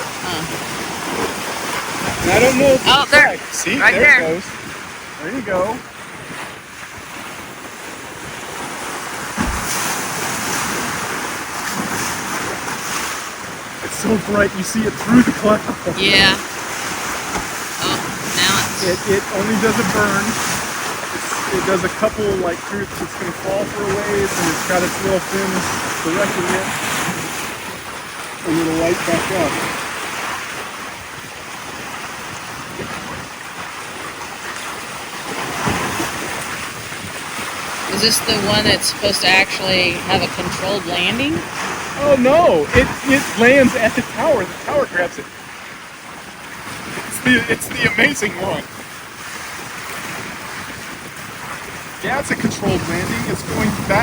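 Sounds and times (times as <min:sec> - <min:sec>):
water rushing around boat: 0:00.0 - 0:54.0
wind buffeting microphone: 0:00.0 - 0:54.0
low thump: 0:09.4 - 0:09.8.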